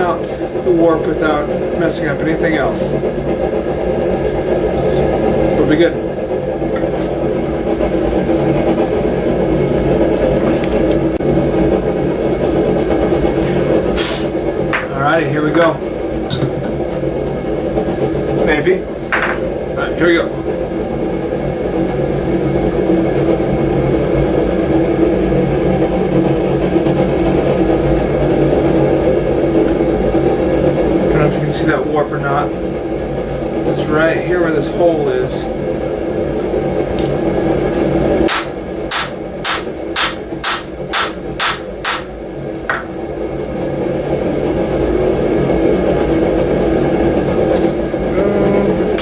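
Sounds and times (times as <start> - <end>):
forge humming: 0.0 - 49.0
wooden mallet striking steel blade: 38.3 - 42.1.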